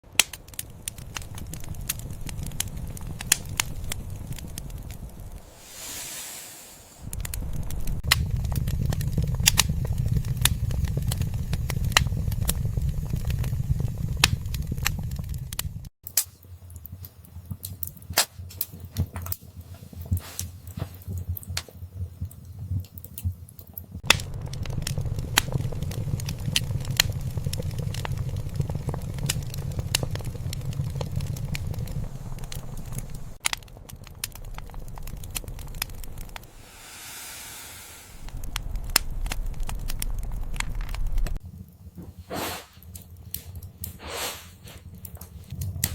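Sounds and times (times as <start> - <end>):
wood fire crackling and popping: 0.0 - 37.1, 38.2 - 45.9
low rumble: 0.5 - 15.9, 24.0 - 41.5.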